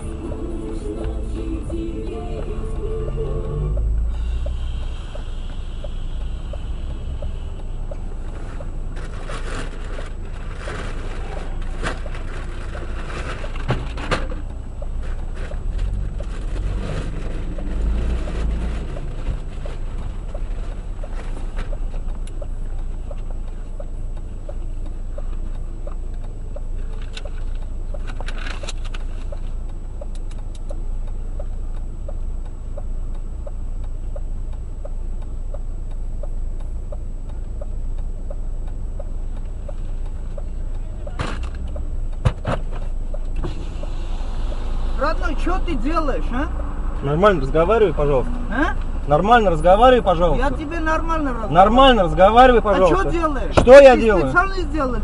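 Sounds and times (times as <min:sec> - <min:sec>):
car road and engine rumble: 0:00.0 - 0:55.0
faint regular ticking: 0:17.5 - 0:42.2.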